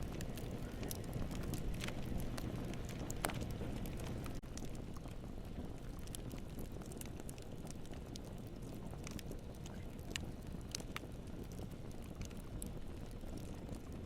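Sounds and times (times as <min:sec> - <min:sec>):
burning wood crackles and pops: 0:00.0 - 0:14.0
campfire flame rushing: 0:00.0 - 0:14.0.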